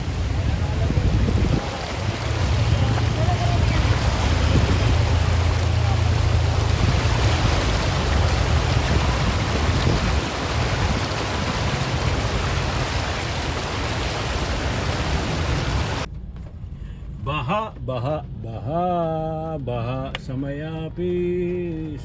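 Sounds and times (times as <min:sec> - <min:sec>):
floodwater rushing: 0:00.0 - 0:16.1
heavy rain: 0:00.0 - 0:16.1
low rumble: 0:00.0 - 0:22.0.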